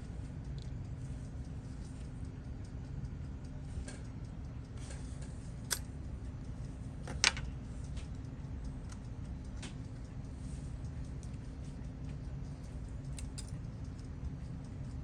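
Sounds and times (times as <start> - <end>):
steady low hum: 0.0 - 15.0
metal tool clicks and taps: 13.0 - 14.0.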